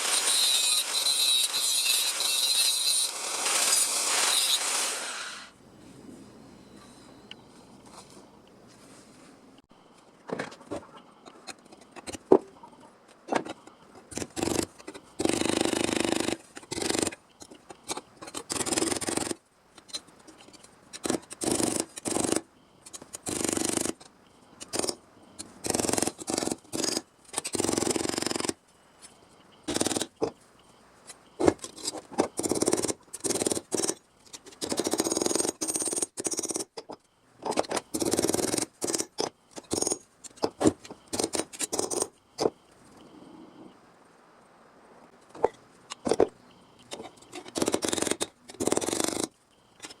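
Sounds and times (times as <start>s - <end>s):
tool cutting sheet metal: 0.0s - 5.5s, 47.3s - 49.3s.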